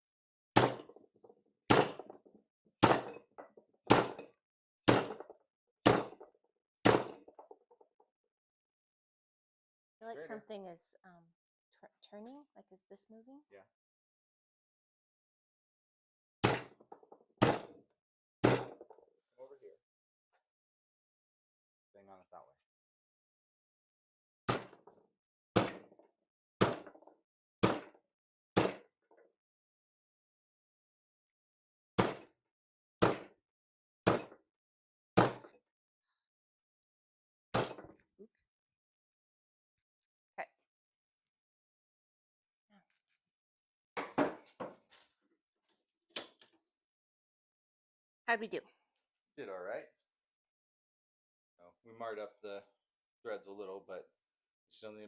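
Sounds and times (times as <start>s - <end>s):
sledgehammer striking metal: 1.7s - 2.1s, 2.8s - 3.2s, 3.9s - 4.2s, 4.9s - 5.2s, 6.9s - 7.2s, 28.6s - 28.8s
sledgehammer striking metal bolt: 16.4s - 16.8s, 28.6s - 28.8s.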